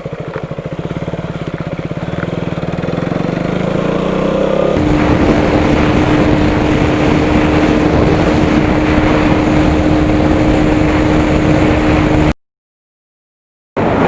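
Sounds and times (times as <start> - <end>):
motorcycle engine cruising: 0.0 - 12.4
wind rush on microphone: 4.7 - 12.4, 13.8 - 14.0.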